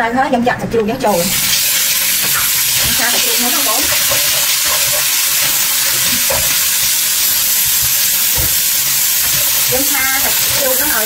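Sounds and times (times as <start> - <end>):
pork sizzling in hot oil: 1.2 - 11.0
spatula stirring in wok: 1.4 - 11.0.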